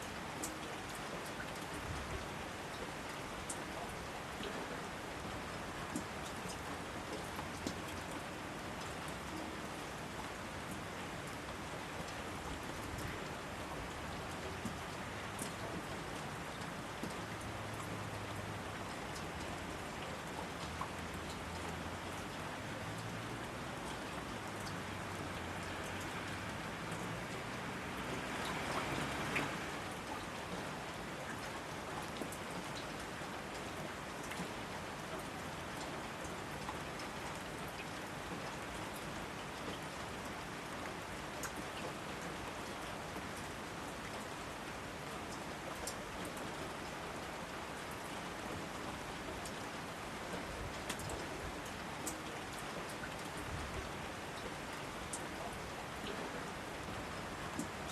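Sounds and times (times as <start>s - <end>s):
raindrops ticking: 0.0s - 1.7s, 5.2s - 42.8s, 45.3s - 47.3s, 48.0s - 53.4s, 54.4s - 57.9s
steady rain: 0.0s - 57.9s.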